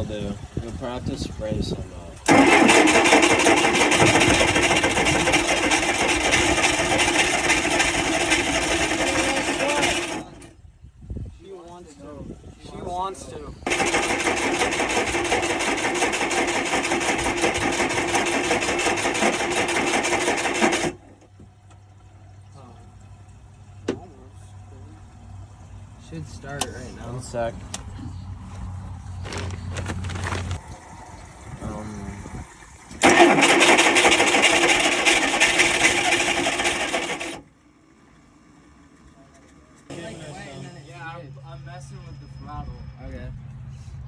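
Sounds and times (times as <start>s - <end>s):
boat engine starter cranking: 2.2s - 10.5s, 13.7s - 21.4s, 32.9s - 37.5s.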